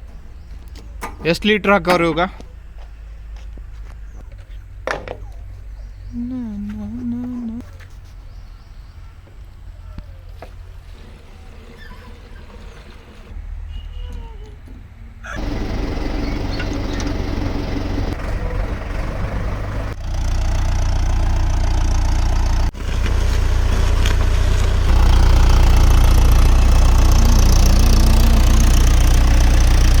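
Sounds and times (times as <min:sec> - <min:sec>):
tractor diesel engine running: 0:15.3 - 0:30.0.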